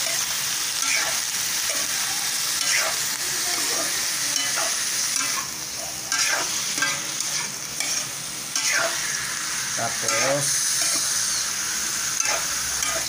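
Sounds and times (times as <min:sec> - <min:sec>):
metal spatula scraping a pan: 0:00.0 - 0:02.0, 0:02.6 - 0:05.5, 0:06.1 - 0:09.2, 0:09.9 - 0:11.4, 0:12.1 - 0:13.0
squid sizzling in oil: 0:00.0 - 0:13.0.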